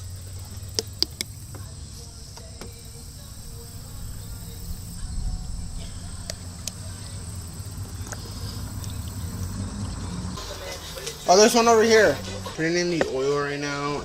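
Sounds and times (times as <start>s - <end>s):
crickets chirring: 0.0s - 14.0s
sharp clicks: 0.7s - 1.4s
low rumble: 3.0s - 10.8s.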